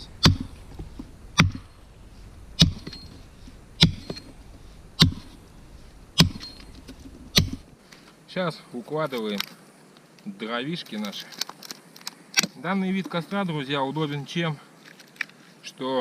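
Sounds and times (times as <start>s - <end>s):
axe chopping wood: 0.0s - 7.7s.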